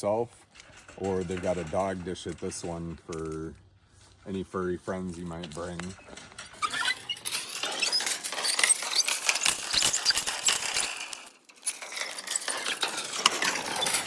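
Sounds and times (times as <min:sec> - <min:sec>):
water pump handle clinking and squeaking: 0:05.3 - 0:14.0.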